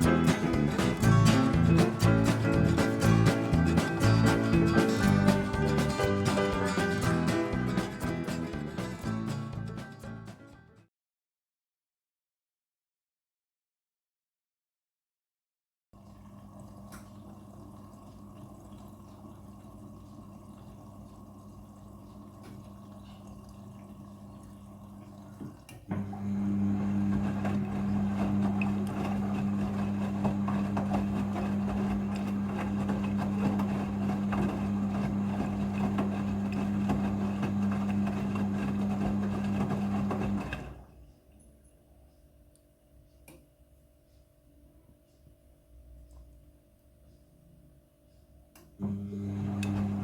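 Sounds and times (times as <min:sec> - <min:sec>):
washing machine hum: 0:00.0 - 0:10.2, 0:16.0 - 0:41.7, 0:48.6 - 0:50.0.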